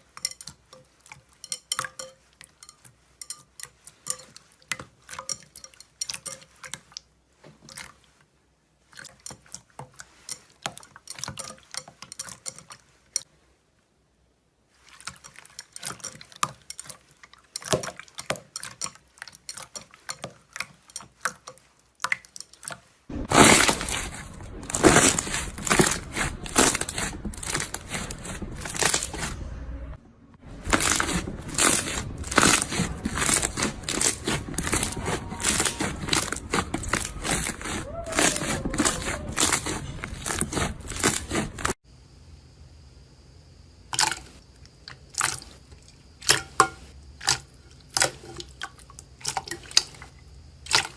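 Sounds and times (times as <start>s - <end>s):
crunchy material crackling by hand: 22.8s - 29.5s, 30.4s - 41.8s.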